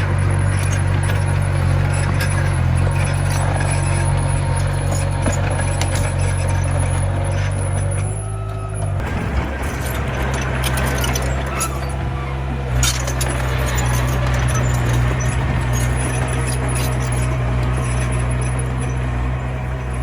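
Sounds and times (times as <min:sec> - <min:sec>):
diesel engine running: 0:00.0 - 0:20.0
metal clanks and knocks: 0:00.0 - 0:20.0.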